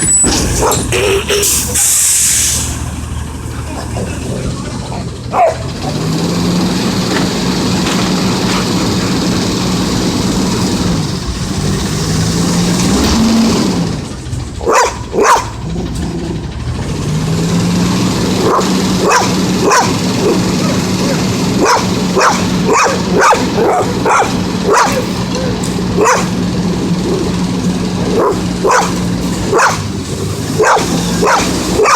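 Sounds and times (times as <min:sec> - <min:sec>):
truck diesel engine revving: 0:00.0 - 0:31.9
dog barking: 0:00.6 - 0:00.8, 0:05.3 - 0:05.7, 0:14.6 - 0:15.6, 0:18.4 - 0:26.4, 0:28.1 - 0:29.9, 0:30.6 - 0:31.9.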